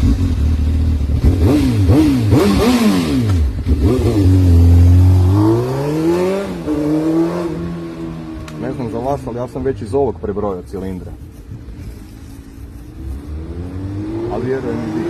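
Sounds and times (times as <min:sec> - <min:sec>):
motorcycle engine revving: 0:00.0 - 0:08.9, 0:12.5 - 0:15.0.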